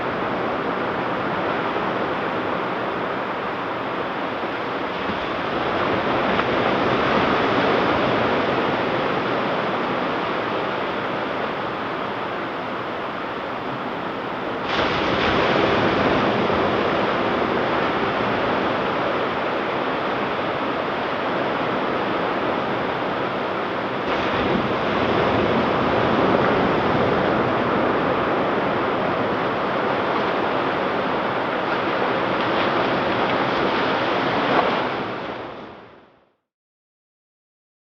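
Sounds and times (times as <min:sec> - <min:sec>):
ocean surf washing onto beach: 0:00.0 - 0:36.0.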